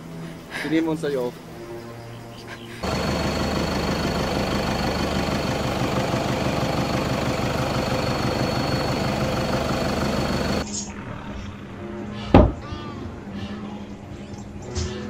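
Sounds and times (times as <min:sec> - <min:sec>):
vehicle engine idling: 0:02.8 - 0:10.6
high constant whine: 0:02.8 - 0:11.9.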